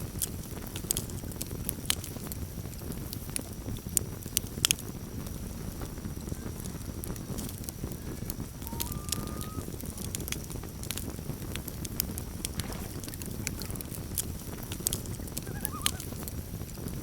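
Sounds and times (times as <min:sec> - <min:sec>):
campfire crackling and popping: 0:00.0 - 0:17.0
loon calling: 0:08.6 - 0:10.2, 0:15.3 - 0:16.2.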